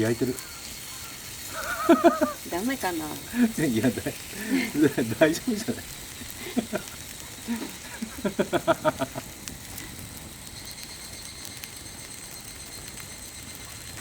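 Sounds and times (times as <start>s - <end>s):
meat sizzling on griddle: 0.0s - 14.0s
person laughing: 1.5s - 2.5s, 3.3s - 9.4s.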